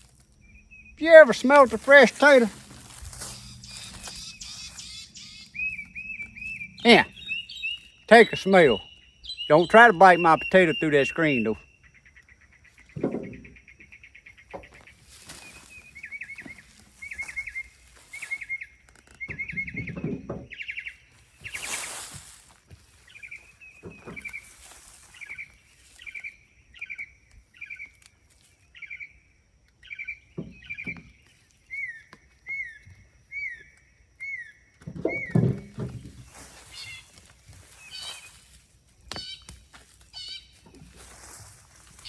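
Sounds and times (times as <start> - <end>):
bird chirping: 0.4 - 42.0
rustling bursts: 1.0 - 5.2, 21.2 - 25.4.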